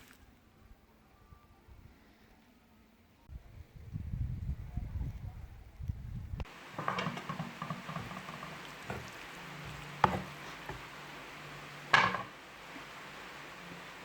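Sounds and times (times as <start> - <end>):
low cooking hiss: 6.4 - 14.0
pots and utensils clattering: 6.5 - 11.0, 11.8 - 12.4.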